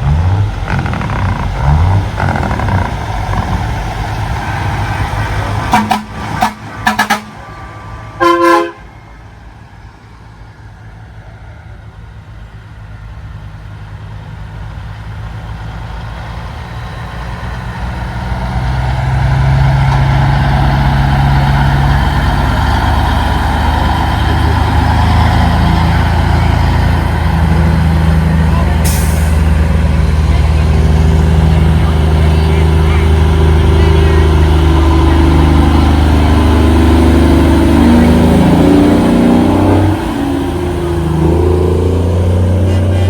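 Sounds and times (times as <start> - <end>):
diesel truck engine approaching: 0.0 - 43.0
truck horn toots and blast: 5.7 - 9.1, 42.6 - 43.0.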